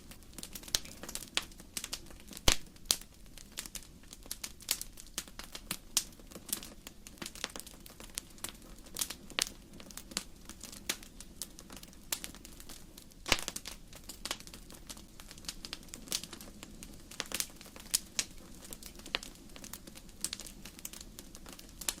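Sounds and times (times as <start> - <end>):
low rumble of flames: 0.0 - 22.0
wood fire crackling: 0.0 - 22.0.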